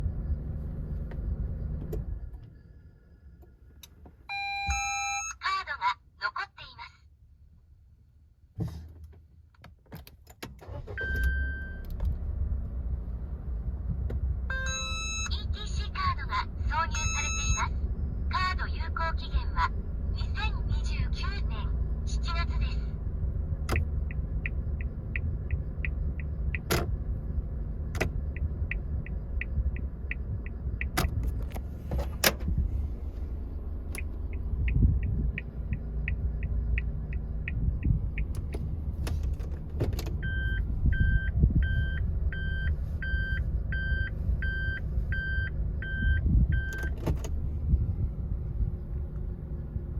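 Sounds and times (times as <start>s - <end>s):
reverse warning beeps: 4.3s - 5.4s, 14.5s - 15.4s, 16.9s - 17.7s, 40.2s - 47.0s
car engine idling: 17.8s - 40.9s
indicator relay ticking: 23.7s - 26.7s, 34.0s - 38.4s.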